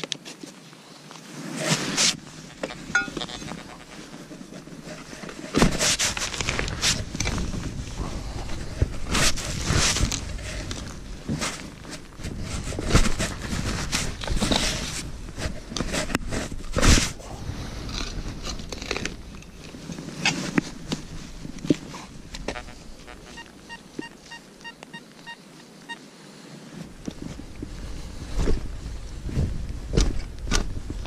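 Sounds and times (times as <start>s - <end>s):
microphone handling noise: 1.6s - 24.6s, 26.8s - 31.0s
metal detector beeps: 2.9s - 3.8s, 22.6s - 26.0s
wind buffeting microphone: 6.4s - 23.7s, 26.9s - 31.0s.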